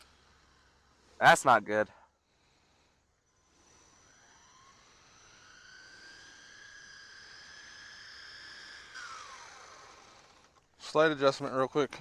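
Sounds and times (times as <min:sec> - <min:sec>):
electric motor whining: 0:03.4 - 0:10.6.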